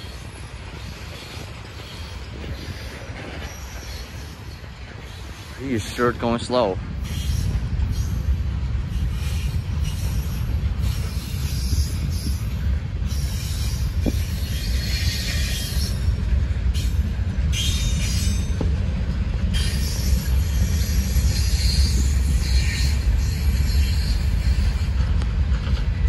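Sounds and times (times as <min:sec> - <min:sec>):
freight train rumbling: 0:00.0 - 0:26.0.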